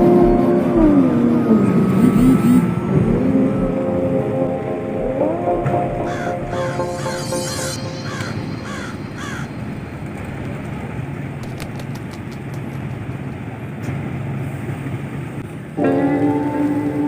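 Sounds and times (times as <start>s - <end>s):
steady low hum: 0.0s - 17.0s
bird calling: 5.9s - 10.6s.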